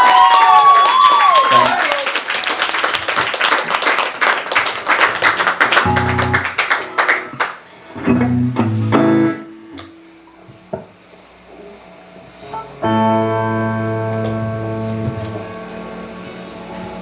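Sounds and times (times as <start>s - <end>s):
guitar strumming and picking: 5.8s - 10.3s, 12.5s - 17.0s.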